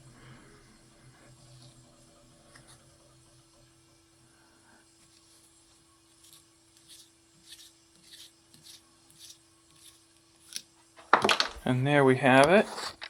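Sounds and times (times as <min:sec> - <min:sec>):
low steady hum: 0:00.0 - 0:13.0
scratchy hand tool strokes: 0:06.2 - 0:10.0.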